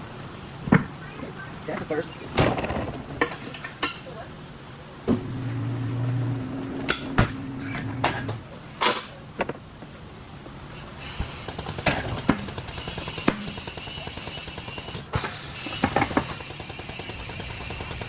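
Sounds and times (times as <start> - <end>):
low steady hum: 0.0 - 10.7.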